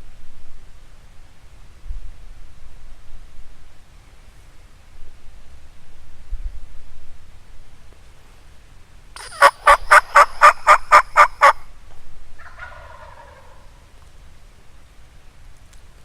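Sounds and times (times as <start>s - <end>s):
turkey calling: 9.2s - 11.6s, 12.4s - 13.8s.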